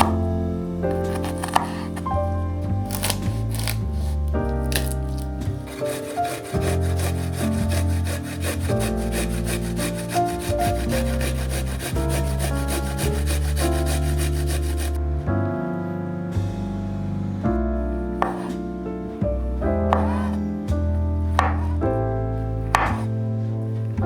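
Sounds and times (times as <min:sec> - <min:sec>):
background music with sustained notes: 0:00.0 - 0:24.0
rhythmic scraping strokes: 0:05.6 - 0:15.0.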